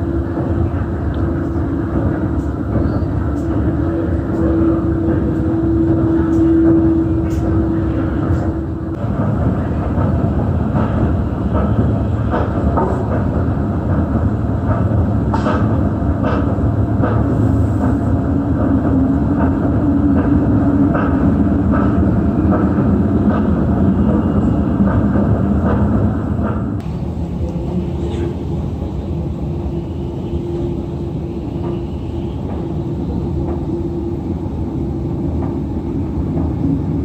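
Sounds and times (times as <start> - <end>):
bus engine and road rumble: 0.0 - 37.0.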